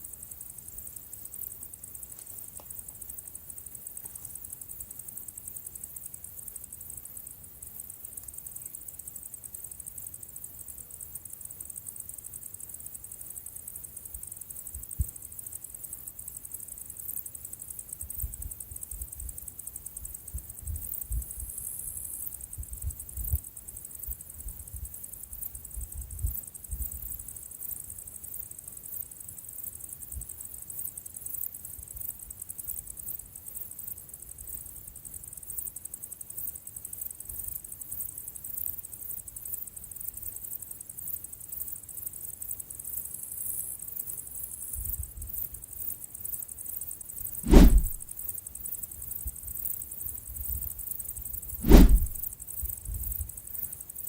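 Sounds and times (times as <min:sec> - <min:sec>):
insects chirring: 0:00.0 - 0:47.4, 0:48.2 - 0:51.6, 0:52.2 - 0:54.0
low thumps: 0:47.5 - 0:48.0, 0:51.6 - 0:52.3.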